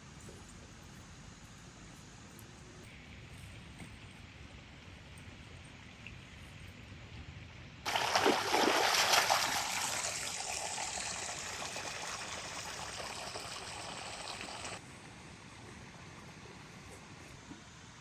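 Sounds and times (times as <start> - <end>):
water pouring and splashing: 7.9 - 14.8.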